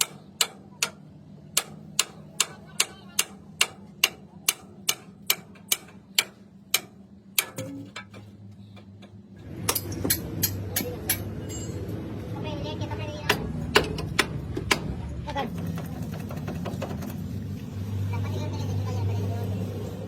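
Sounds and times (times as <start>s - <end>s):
hammer tapping on steel: 0.0s - 11.8s
low steady hum: 0.0s - 20.0s.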